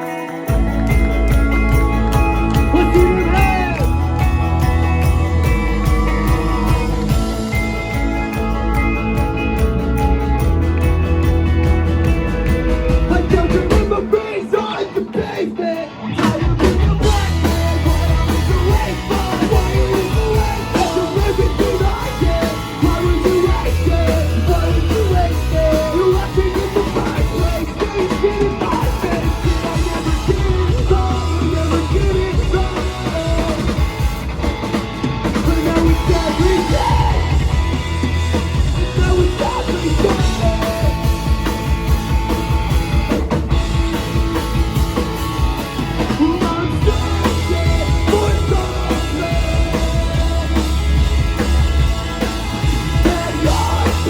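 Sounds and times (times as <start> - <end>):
person singing: 0.0 - 7.7, 12.9 - 34.0, 35.4 - 41.6, 46.0 - 54.0
pounding drum kit: 0.0 - 15.1, 16.2 - 54.0.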